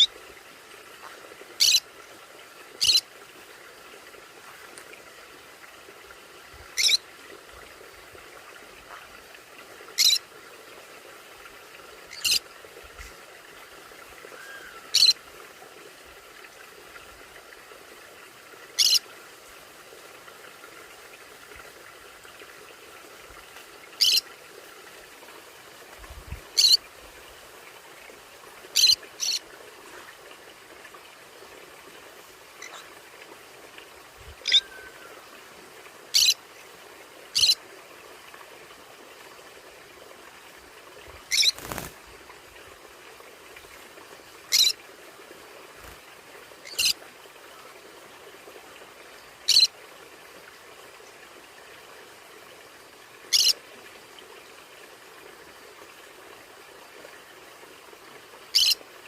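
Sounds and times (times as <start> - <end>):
parrot calling high-pitched: 34.4 - 34.9.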